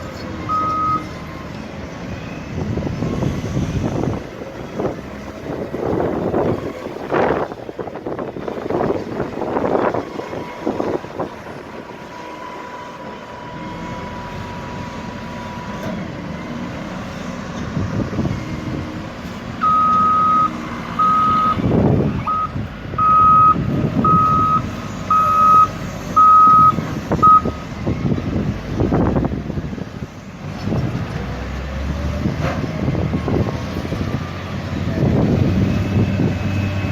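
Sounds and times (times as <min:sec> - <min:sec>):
diesel engine running: 0:00.0 - 0:36.9
backup alarm beeping: 0:00.5 - 0:01.0, 0:19.6 - 0:21.6, 0:22.2 - 0:27.6.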